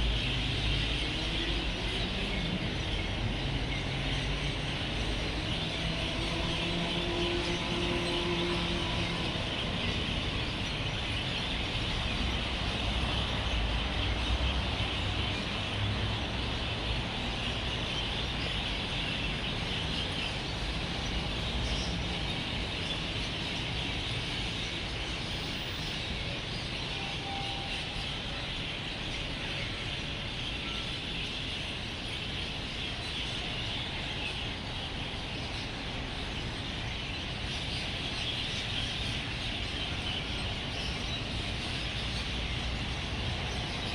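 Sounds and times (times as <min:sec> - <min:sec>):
low traffic rumble: 0:00.0 - 0:43.9.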